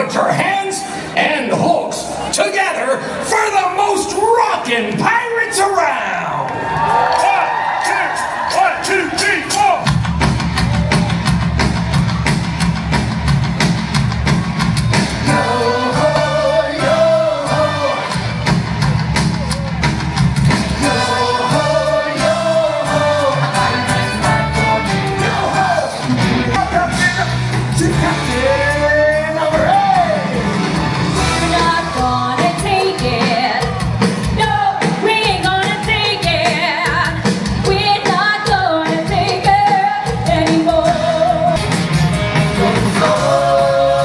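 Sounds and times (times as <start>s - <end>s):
crowd shouts and cheers: 0.0s - 44.0s
live rock band playing: 9.5s - 44.0s
lead singer singing: 15.2s - 18.5s, 20.6s - 30.6s, 42.4s - 44.0s.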